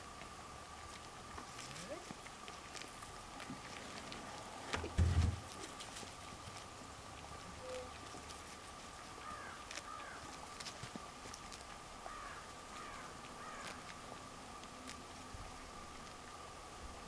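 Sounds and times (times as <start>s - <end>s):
steady faint tone: 0.0s - 17.0s
distant birds calling: 9.1s - 10.4s, 12.0s - 14.2s.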